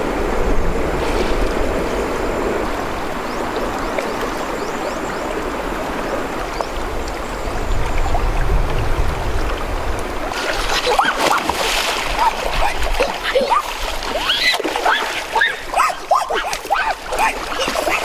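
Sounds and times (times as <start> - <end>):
flowing water rushing: 0.0 - 18.0.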